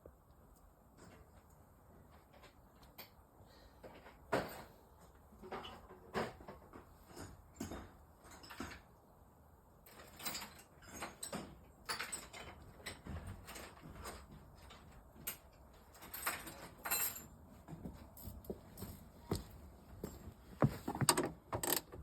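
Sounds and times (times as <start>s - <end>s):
wrench clinking on metal parts: 9.9s - 17.3s.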